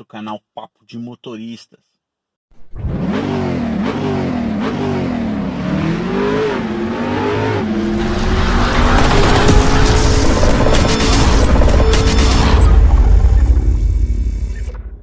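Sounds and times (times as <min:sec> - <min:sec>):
car engine revving: 0:02.6 - 0:13.9
rushing noise: 0:07.0 - 0:14.7.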